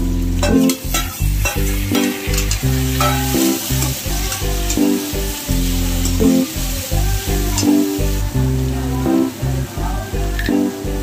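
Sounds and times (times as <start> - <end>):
tomatoes sizzling in hot oil: 0.0 - 10.4
background music with bass: 0.0 - 11.0
metal spatula scraping pan: 0.5 - 4.4.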